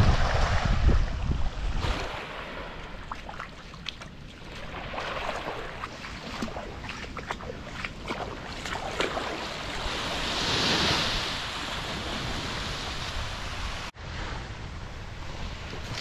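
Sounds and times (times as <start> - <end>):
wind on microphone: 0.0 - 3.4
waves washing: 0.0 - 16.0.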